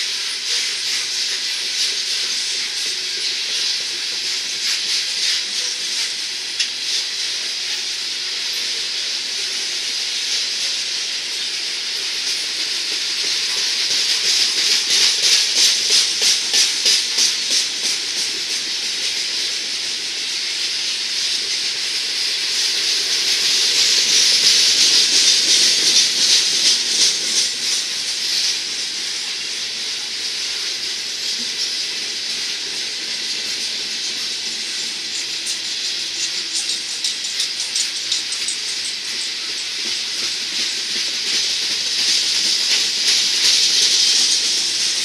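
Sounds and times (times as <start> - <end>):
train wheels hissing on rails: 0.0 - 45.0
wheel clicks: 36.2 - 39.6.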